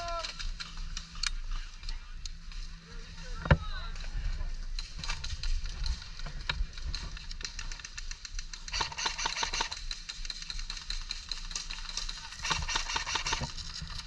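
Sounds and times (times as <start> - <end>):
airsoft guns firing: 7.3 - 13.6.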